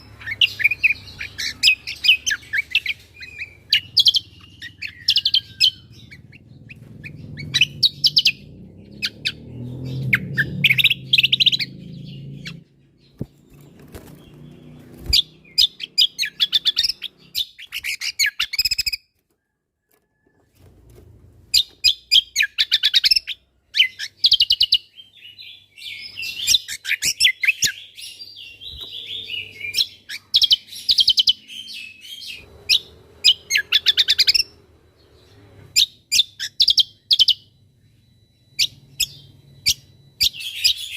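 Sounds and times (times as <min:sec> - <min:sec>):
bird chattering chirps and trills: 0:00.0 - 0:19.0, 0:25.9 - 0:34.6.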